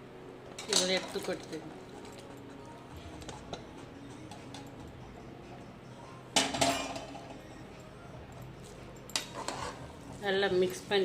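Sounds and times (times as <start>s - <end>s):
spoon clattering against pot: 9.1s - 9.8s.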